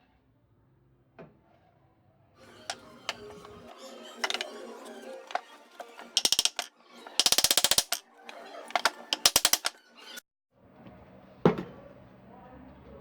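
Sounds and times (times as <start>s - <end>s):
rapid mechanical clicking: 5.3s - 8.0s, 8.7s - 9.8s.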